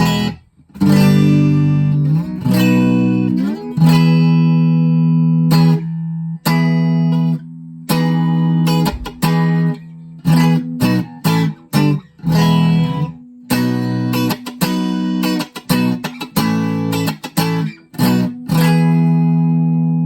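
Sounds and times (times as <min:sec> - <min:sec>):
electric guitar chords strummed: 0:00.0 - 0:20.0.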